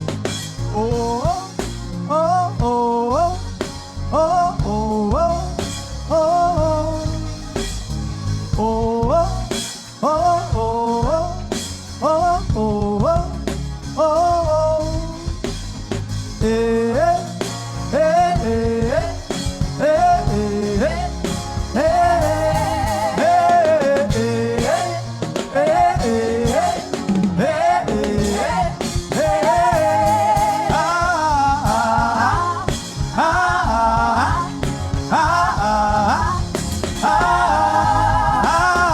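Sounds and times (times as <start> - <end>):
instrumental accompaniment with low beat: 0.0 - 38.9
person singing worship song: 16.4 - 38.9.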